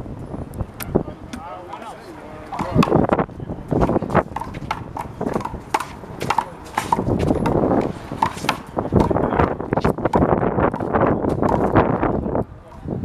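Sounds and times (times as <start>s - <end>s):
sneakers scuffing: 3.8s - 11.6s.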